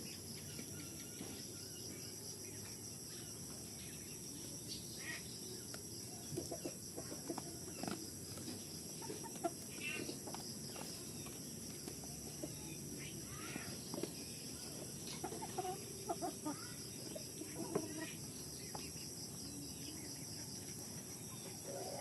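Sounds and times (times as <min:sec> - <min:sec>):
chickens clucking: 0:05.0 - 0:19.3, 0:20.2 - 0:22.0.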